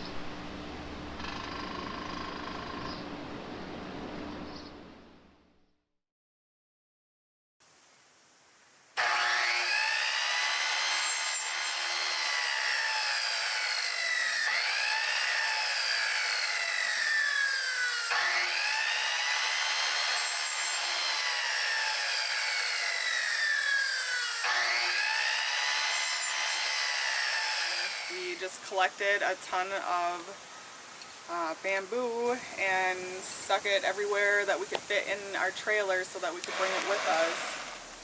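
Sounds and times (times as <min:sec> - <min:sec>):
power saw cutting bamboo: 0:09.0 - 0:28.5, 0:36.4 - 0:38.0.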